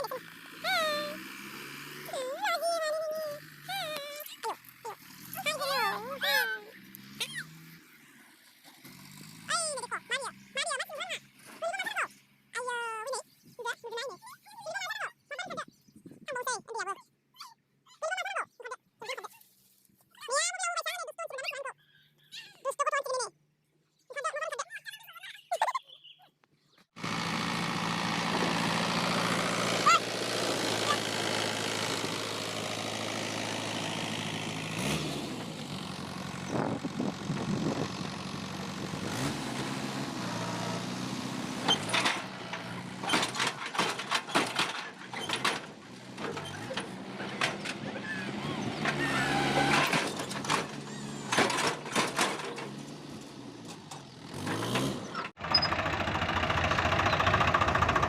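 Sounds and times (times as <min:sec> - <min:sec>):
tractor diesel engine: 0:00.0 - 0:13.1, 0:27.0 - 0:58.0
knocks and clatters: 0:41.6 - 0:48.0, 0:48.7 - 0:55.6.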